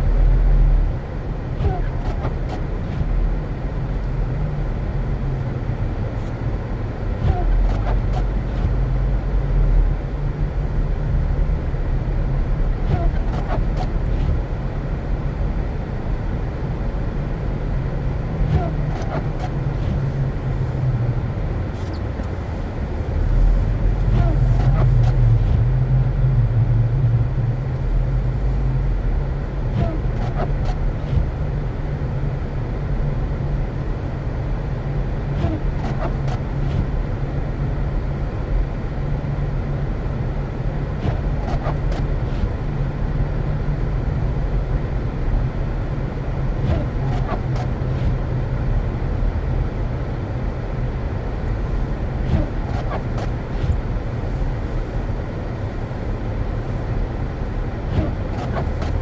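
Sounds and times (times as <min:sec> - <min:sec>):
car engine and road noise: 0:00.0 - 0:59.0
faint clicks and squeaks: 0:41.0 - 0:42.5, 0:46.6 - 0:48.2, 0:51.4 - 0:55.0, 0:57.9 - 0:59.0.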